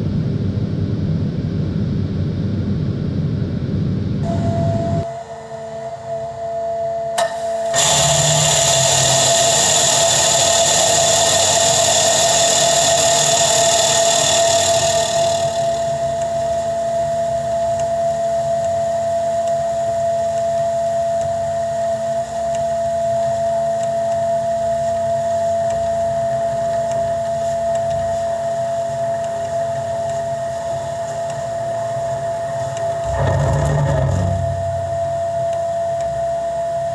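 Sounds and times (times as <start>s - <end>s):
farm machinery whining: 4.2s - 16.8s, 29.7s - 36.2s.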